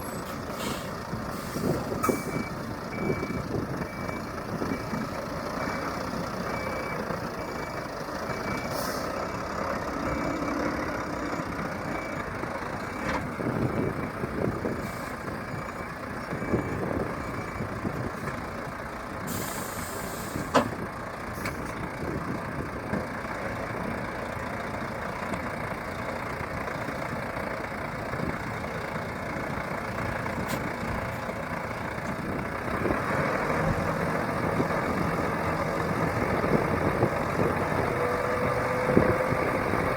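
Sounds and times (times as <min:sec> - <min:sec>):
diesel truck engine running: 0:00.0 - 0:39.9
reversing alarm beeping: 0:02.0 - 0:13.9, 0:14.7 - 0:17.7.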